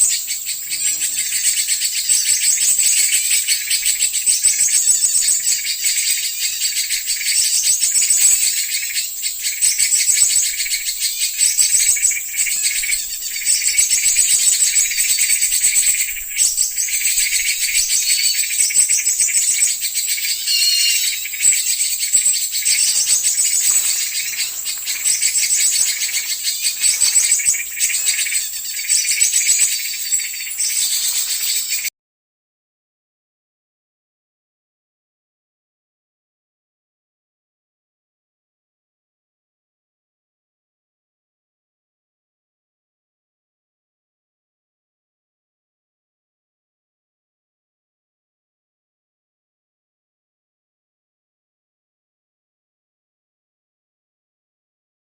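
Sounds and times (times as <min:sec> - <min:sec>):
many small birds chirping: 0:00.0 - 0:31.9.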